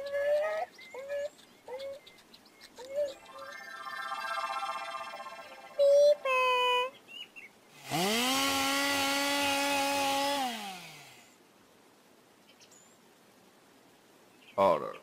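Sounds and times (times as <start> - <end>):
cartoon power saw buzzing: 7.8 - 11.3.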